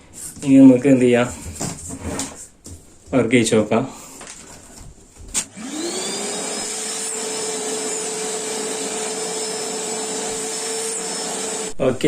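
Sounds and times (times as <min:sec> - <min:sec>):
vacuum cleaner motor whining: 0:05.4 - 0:11.8.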